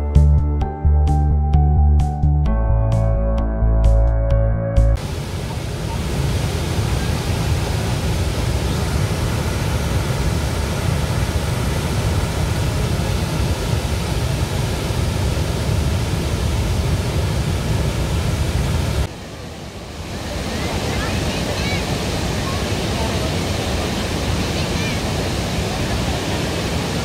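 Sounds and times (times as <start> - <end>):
large waterfall rushing: 5.0 - 27.0.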